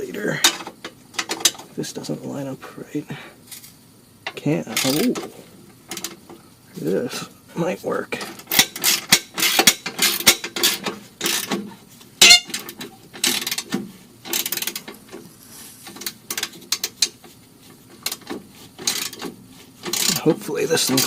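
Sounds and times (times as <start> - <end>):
tools clicking and knocking on metal: 0.4 - 1.7, 3.6 - 6.4, 8.2 - 17.3, 17.9 - 21.0.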